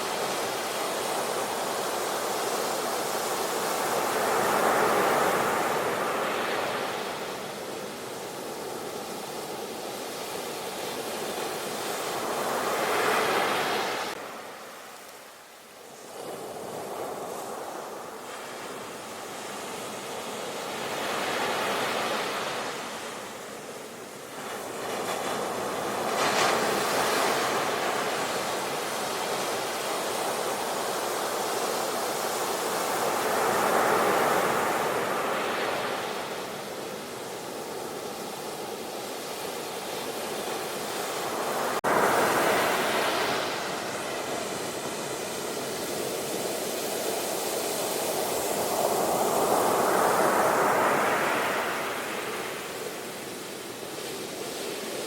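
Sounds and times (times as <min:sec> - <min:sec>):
ocean waves breaking: 0:39.8 - 0:55.0.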